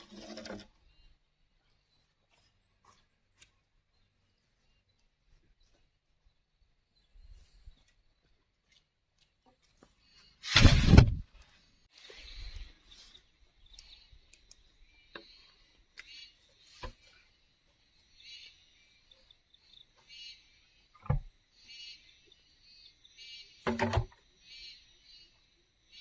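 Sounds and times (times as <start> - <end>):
birds chirping: 0.0 - 10.7, 11.4 - 26.0
insects chirping: 11.5 - 26.0.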